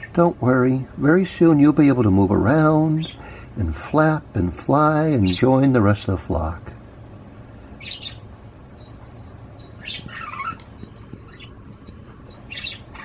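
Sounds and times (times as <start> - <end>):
budgie chirping: 7.8 - 13.0.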